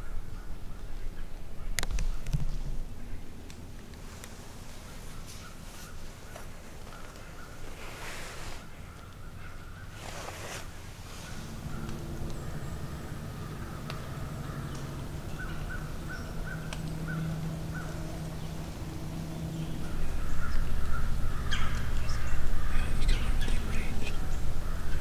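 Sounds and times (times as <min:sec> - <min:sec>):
birds calling: 0:04.3 - 0:25.0
low rumble: 0:10.9 - 0:25.0.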